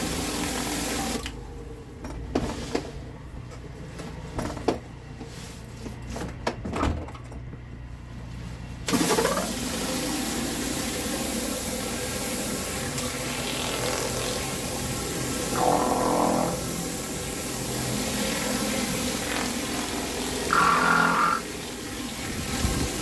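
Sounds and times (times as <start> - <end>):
water spray hissing on concrete: 0.0 - 1.2, 8.9 - 23.0
pressure washer humming: 0.0 - 1.3, 8.9 - 23.0.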